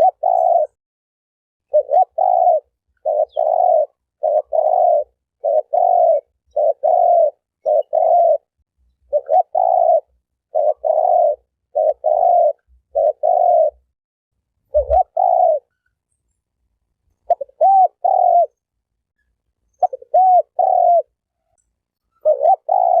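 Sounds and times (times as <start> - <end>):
dove cooing: 0.0 - 0.8, 1.7 - 13.9, 14.7 - 15.8, 17.2 - 18.7, 19.8 - 21.2, 22.1 - 23.0.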